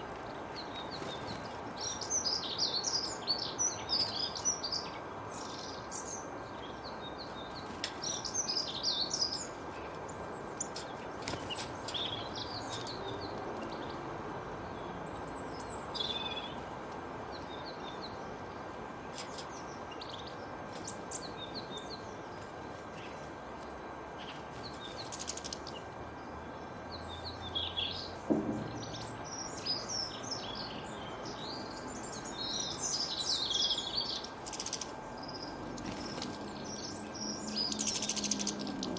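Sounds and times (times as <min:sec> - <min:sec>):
background rush of noise: 0:00.0 - 0:38.9
birds chirping and singing: 0:00.4 - 0:14.1, 0:24.0 - 0:38.9.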